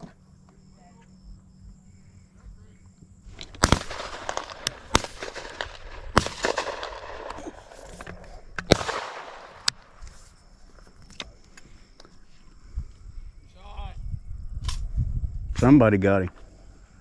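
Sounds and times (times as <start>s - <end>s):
shotgun shots echoing: 3.4s - 7.8s, 8.6s - 10.0s.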